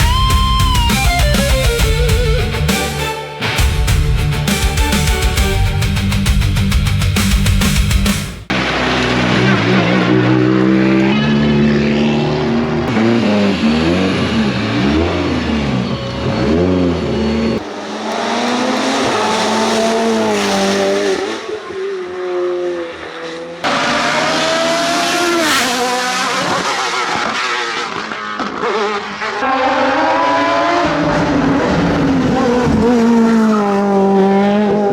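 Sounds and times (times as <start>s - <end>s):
race car engines revving: 8.5s - 34.9s.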